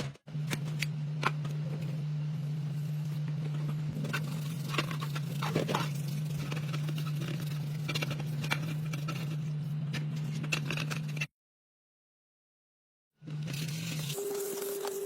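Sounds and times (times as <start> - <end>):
steady low hum: 0.0 - 11.3.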